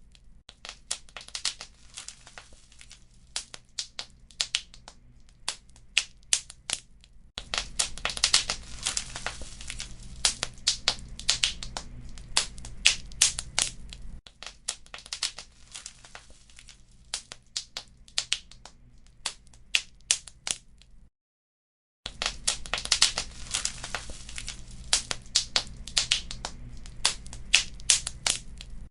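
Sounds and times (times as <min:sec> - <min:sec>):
wood fire crackling and popping: 0:00.0 - 0:20.9, 0:22.1 - 0:28.9.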